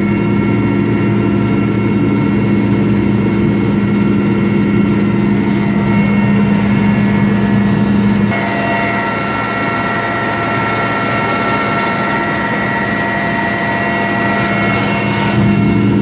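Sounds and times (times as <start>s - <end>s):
helicopter engine and rotor drone: 0.0s - 16.0s
high-pitched whining tones: 4.8s - 16.0s.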